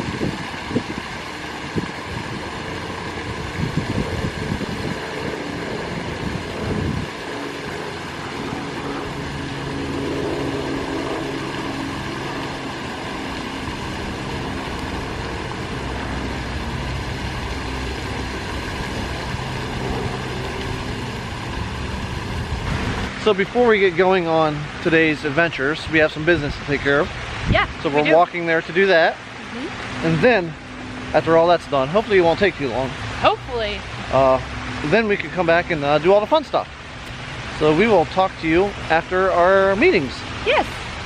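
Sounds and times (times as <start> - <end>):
wind buffeting microphone: 0.0 - 23.3
fountain water splashing: 0.0 - 41.0
low steady drone: 0.0 - 41.0.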